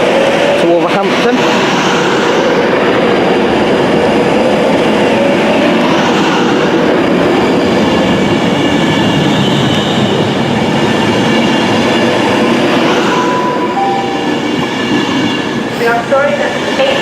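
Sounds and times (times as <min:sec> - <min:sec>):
train wheels rumbling: 0:00.0 - 0:17.0
two-tone signal: 0:13.1 - 0:14.7.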